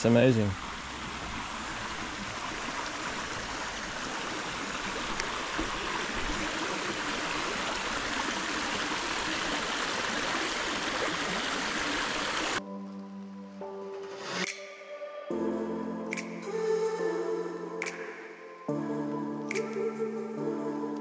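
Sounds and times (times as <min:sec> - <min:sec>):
running water rushing: 0:00.0 - 0:12.6.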